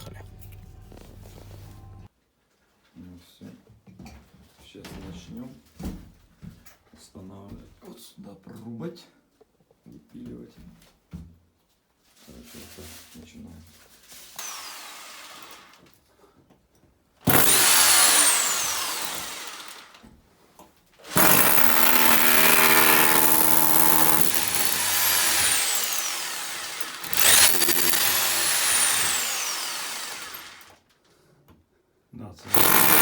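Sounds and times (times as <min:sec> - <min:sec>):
power saw whining: 0:17.3 - 0:20.0, 0:21.1 - 0:30.8, 0:32.5 - 0:33.0.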